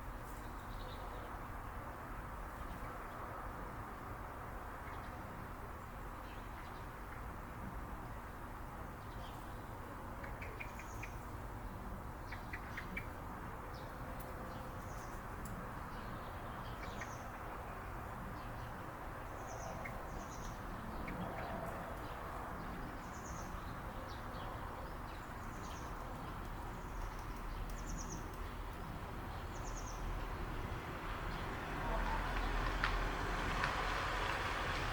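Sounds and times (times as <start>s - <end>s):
outdoor background noise: 0.0s - 34.9s
small birds chirping: 10.2s - 11.3s, 19.4s - 30.5s.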